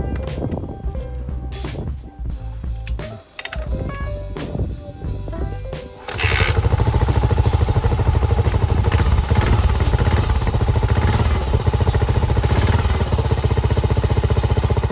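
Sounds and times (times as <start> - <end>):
background music: 0.0 - 12.9
motorcycle engine idling: 6.0 - 14.9.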